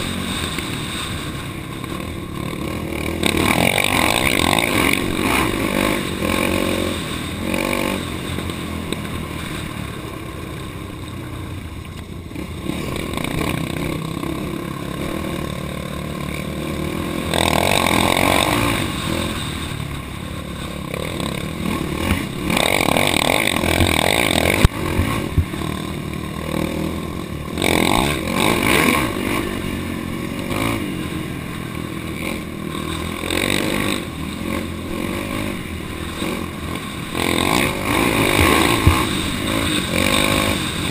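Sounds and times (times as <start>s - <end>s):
off-road vehicle engine revving: 0.0s - 11.6s, 12.2s - 40.9s
vehicle clattering over rough ground: 0.0s - 40.9s.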